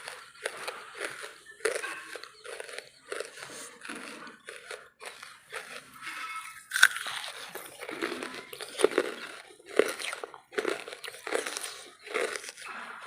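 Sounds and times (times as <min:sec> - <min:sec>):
charcoal crunching between teeth: 0:00.0 - 0:13.0.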